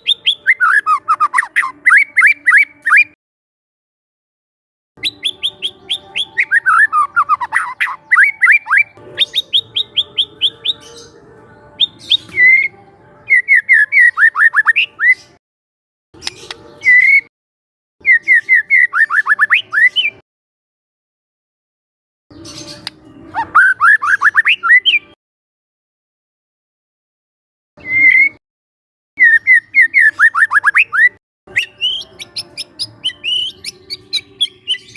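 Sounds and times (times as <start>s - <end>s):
songbird singing whistles: 0.0s - 3.2s, 5.0s - 11.1s, 11.8s - 15.4s, 16.2s - 17.3s, 18.0s - 20.2s, 22.3s - 25.1s, 27.8s - 28.4s, 29.2s - 34.9s.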